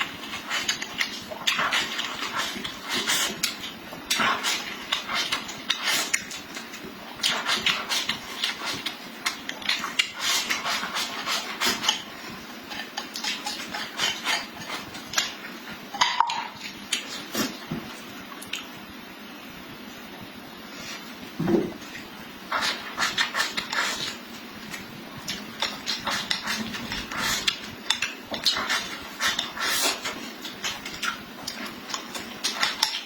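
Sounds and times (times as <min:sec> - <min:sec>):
chewing and lip-smacking: 0:24.7 - 0:33.0.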